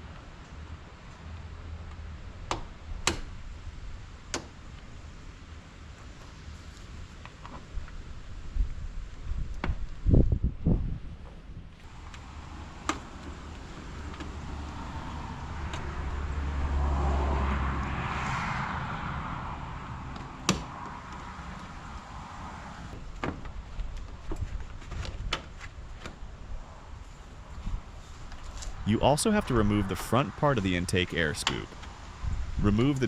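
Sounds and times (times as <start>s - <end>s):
vehicle passing: 11.8s - 23.0s, 26.6s - 33.0s.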